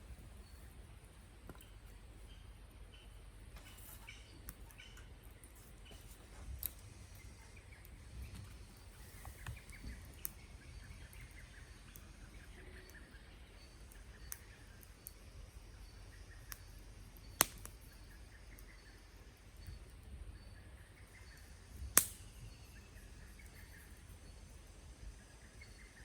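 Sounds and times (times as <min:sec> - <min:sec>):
faint birdsong: 0:00.0 - 0:26.0
campfire crackling and popping: 0:01.4 - 0:02.1, 0:03.4 - 0:22.6.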